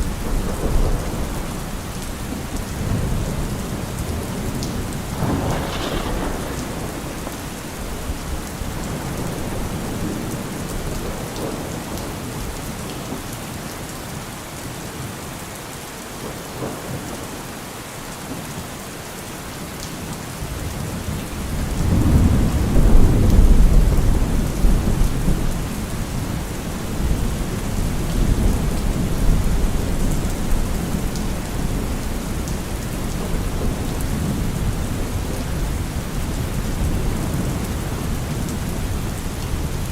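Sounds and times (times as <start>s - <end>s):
rolling thunder: 0.0s - 12.5s, 21.4s - 39.9s
steady rain falling: 0.0s - 39.9s.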